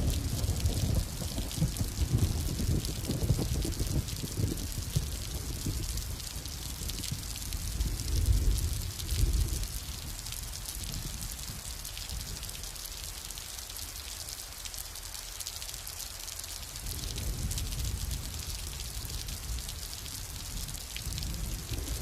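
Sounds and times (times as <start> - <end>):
distant thunder rumble: 0.0 - 9.8, 16.9 - 22.0
rain pattering: 0.0 - 22.0.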